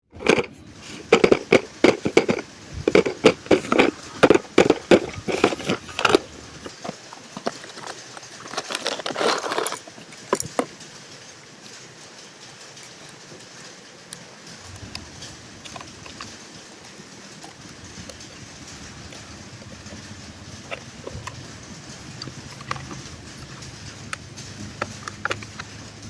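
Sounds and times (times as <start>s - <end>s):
packaging rustle: 0.2s - 10.8s.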